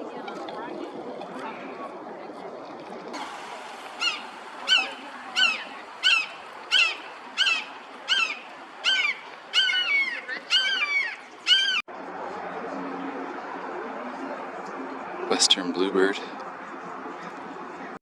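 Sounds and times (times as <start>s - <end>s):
waterfowl calling: 3.3s - 11.8s.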